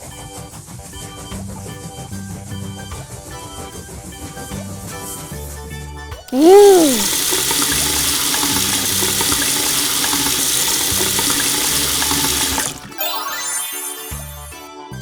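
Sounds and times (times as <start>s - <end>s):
tap water running into sink: 6.4s - 13.0s
rising chime tones: 12.9s - 14.7s.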